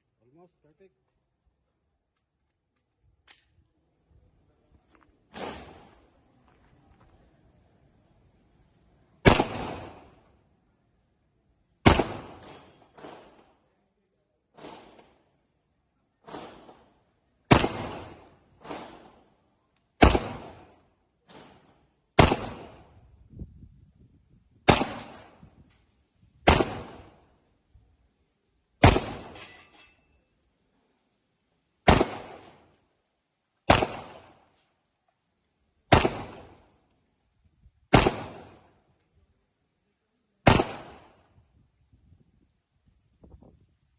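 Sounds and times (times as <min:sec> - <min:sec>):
quieter gunshots: 0:05.3 - 0:06.1, 0:09.2 - 0:10.3, 0:11.8 - 0:13.6, 0:14.5 - 0:15.3, 0:16.2 - 0:19.3, 0:20.0 - 0:23.1, 0:24.6 - 0:25.6, 0:26.4 - 0:27.4, 0:28.8 - 0:29.4, 0:31.8 - 0:32.8, 0:33.6 - 0:34.5, 0:35.9 - 0:36.8, 0:37.9 - 0:38.9, 0:40.4 - 0:41.4
pistol shots echoing: 0:09.2 - 0:10.2, 0:11.8 - 0:13.5, 0:16.2 - 0:16.9, 0:17.5 - 0:19.2, 0:20.0 - 0:23.0, 0:24.7 - 0:25.4, 0:26.4 - 0:27.2, 0:28.8 - 0:29.4, 0:31.8 - 0:32.7, 0:33.7 - 0:34.5, 0:35.9 - 0:36.6, 0:37.9 - 0:38.7, 0:40.4 - 0:41.2.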